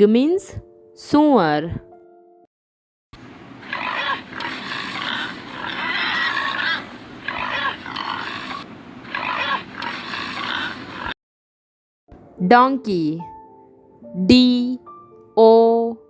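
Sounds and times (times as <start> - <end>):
pigs grunting and squealing: 3.6 - 11.2.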